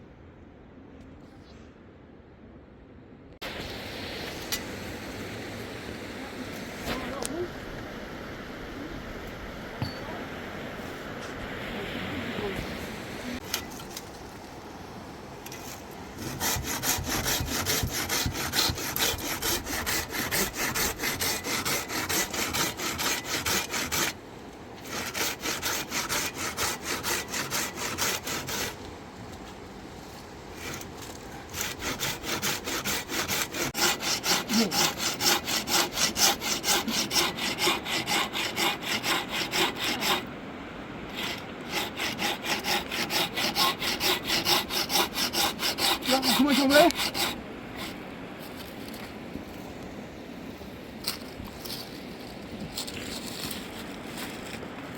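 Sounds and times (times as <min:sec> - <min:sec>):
hand saw cutting wood: 0:15.5 - 0:24.2, 0:24.8 - 0:28.8, 0:31.5 - 0:40.3, 0:41.1 - 0:48.0.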